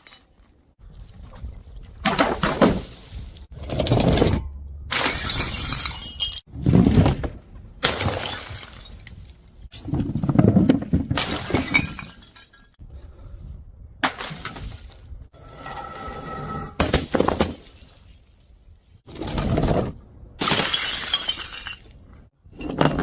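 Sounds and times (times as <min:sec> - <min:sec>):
glass bottles smashing: 0:04.9 - 0:06.5, 0:07.8 - 0:09.3, 0:11.2 - 0:12.8, 0:20.4 - 0:22.0.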